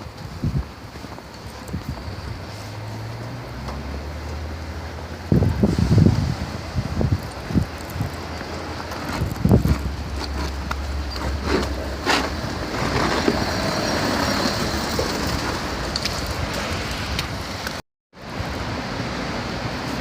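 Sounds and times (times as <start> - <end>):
wind on microphone: 0.0 - 3.1, 5.0 - 17.8
road traffic noise: 0.0 - 20.0.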